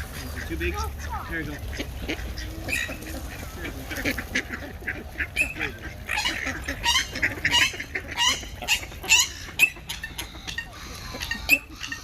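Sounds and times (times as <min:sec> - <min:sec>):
waterbirds squawking: 0:00.0 - 0:12.0.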